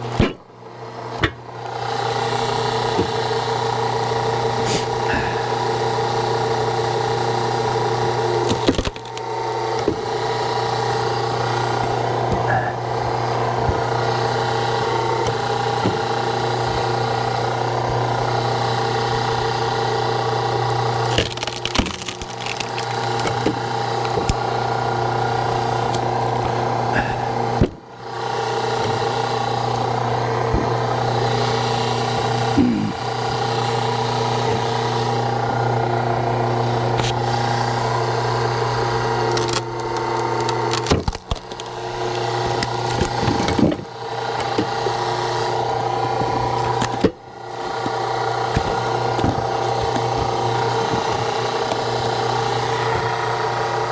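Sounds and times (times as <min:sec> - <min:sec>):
log splitter hum: 0:00.0 - 0:53.9
log cracking apart: 0:08.0 - 0:20.0, 0:20.6 - 0:26.5, 0:38.3 - 0:53.9.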